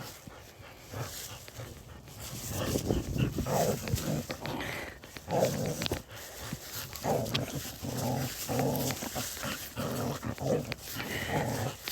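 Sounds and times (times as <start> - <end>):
puppy growling: 2.9 - 6.1, 6.9 - 11.9.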